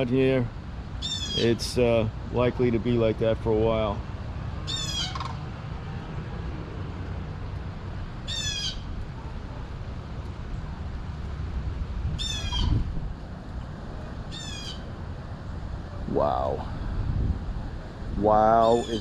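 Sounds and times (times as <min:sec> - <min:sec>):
steady low rumble: 0:00.0 - 0:19.0
harsh crow-like bird calls: 0:01.0 - 0:01.5, 0:04.6 - 0:05.5, 0:08.3 - 0:09.0, 0:12.2 - 0:12.8, 0:14.3 - 0:14.9.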